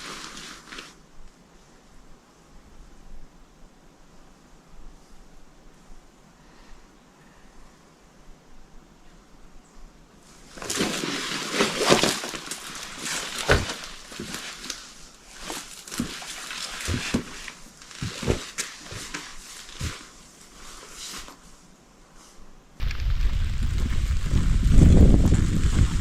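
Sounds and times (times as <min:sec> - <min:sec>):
rustling and handling noises: 0:00.0 - 0:01.4, 0:10.2 - 0:26.0.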